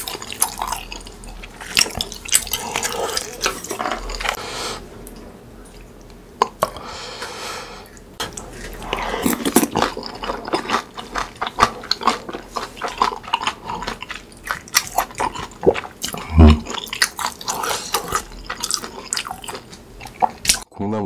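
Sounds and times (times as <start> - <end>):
crunchy chewing: 7.8 - 20.7.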